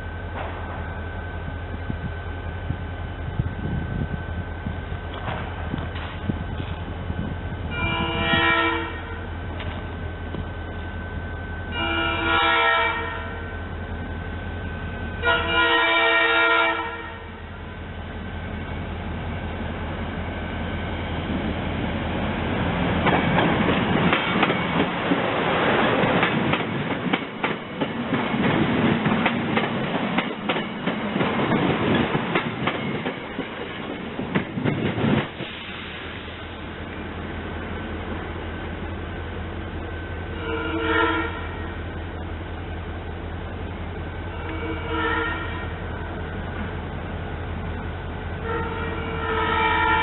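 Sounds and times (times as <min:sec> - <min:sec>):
train wheels clicking over rail joints: 0:05.0 - 0:06.9, 0:09.6 - 0:10.5, 0:22.8 - 0:35.8
train horn blasts: 0:07.7 - 0:09.3, 0:11.7 - 0:13.5, 0:15.2 - 0:17.4, 0:40.3 - 0:41.8, 0:44.4 - 0:45.8, 0:48.4 - 0:50.0.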